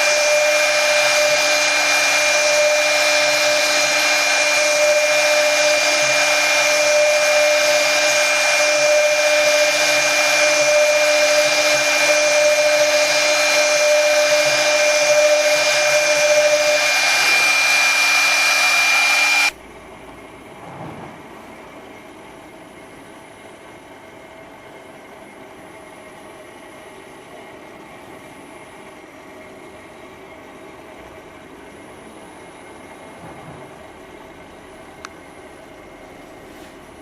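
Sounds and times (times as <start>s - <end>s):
router spindle whine: 0.0s - 19.6s.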